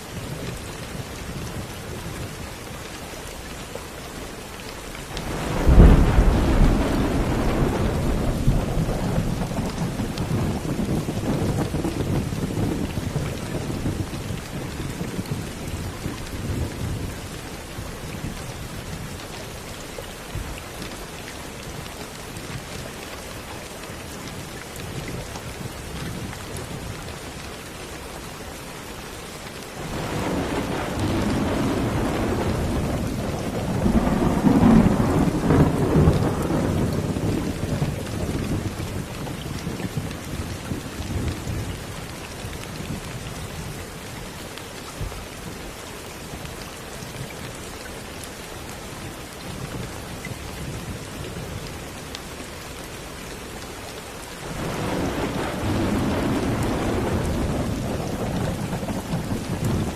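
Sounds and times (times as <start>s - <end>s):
steady rain: 0.0s - 59.9s
thunder rumbling: 5.2s - 14.3s, 29.8s - 39.1s, 54.4s - 59.9s.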